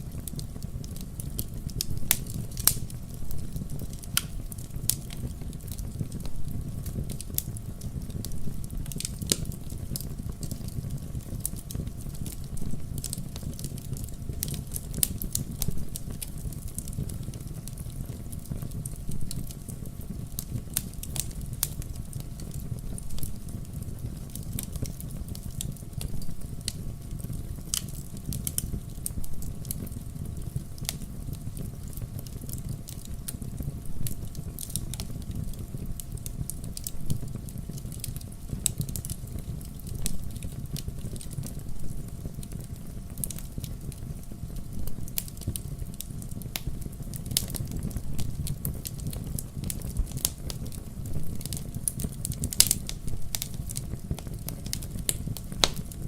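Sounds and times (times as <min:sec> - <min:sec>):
fireplace fire crackling: 0:00.0 - 0:56.0
low rumble of flames: 0:00.0 - 0:56.0
sharp wood pops: 0:55.6 - 0:55.9.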